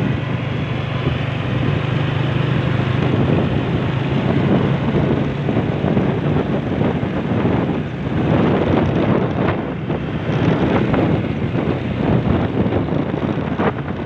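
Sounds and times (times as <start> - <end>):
motorcycle engine running: 0.0 - 14.0
wind noise on microphone: 0.0 - 14.0.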